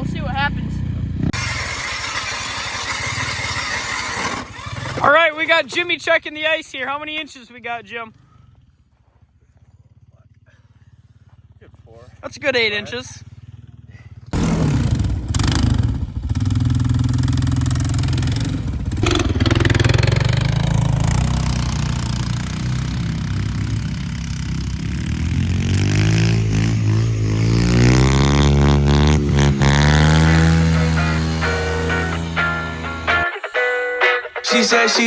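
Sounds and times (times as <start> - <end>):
quad engine revving: 0.0 - 5.8, 12.6 - 33.2.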